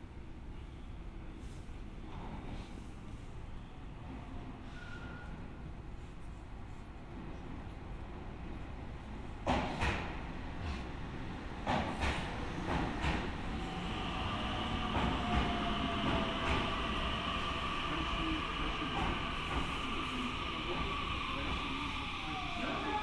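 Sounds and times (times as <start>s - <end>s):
train high-pitched whine: 13.4s - 23.0s.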